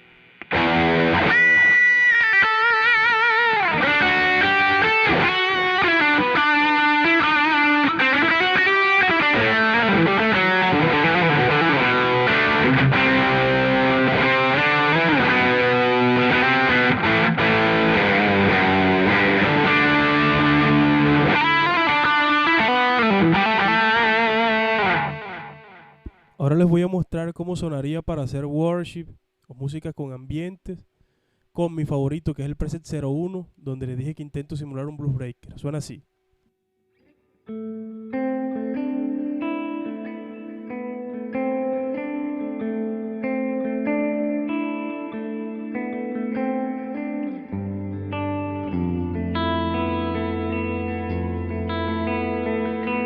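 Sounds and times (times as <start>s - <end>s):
overdriven electric guitar: 0.0s - 26.4s, 37.0s - 53.0s.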